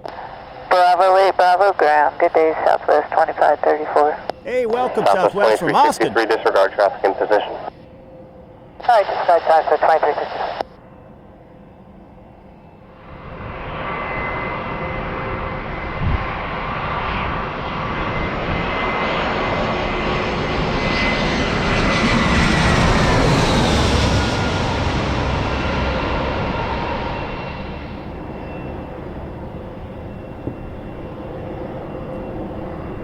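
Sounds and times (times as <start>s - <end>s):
jet airliner engines: 0.0s - 33.0s
high engine whine: 25.3s - 33.0s.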